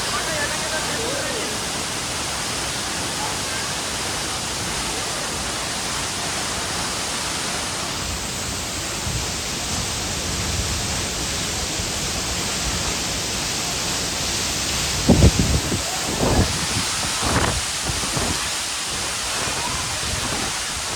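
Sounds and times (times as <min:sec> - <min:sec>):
steady rain hiss: 0:00.0 - 0:20.9.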